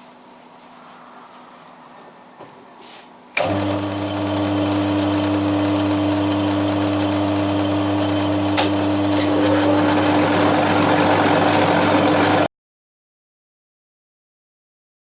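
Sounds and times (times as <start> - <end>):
milling machine motor humming: 3.4 - 12.5.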